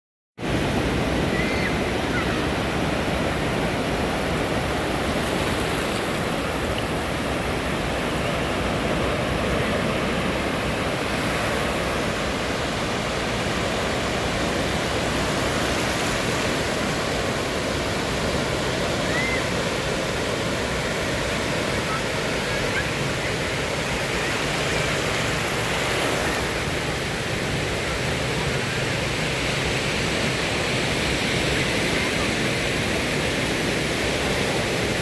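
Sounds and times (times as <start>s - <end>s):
ocean waves washing on beach: 0.4s - 35.0s.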